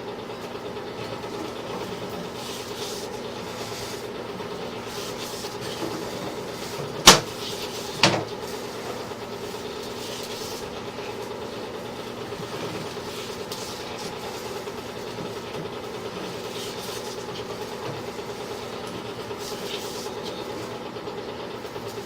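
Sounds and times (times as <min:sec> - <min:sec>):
mechanical hum: 0:00.0 - 0:22.0
sharp knocks: 0:07.1 - 0:07.3.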